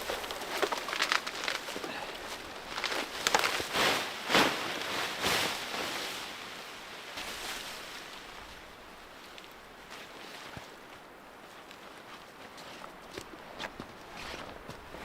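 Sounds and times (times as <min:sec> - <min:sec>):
brush rustling: 0:00.0 - 0:11.6.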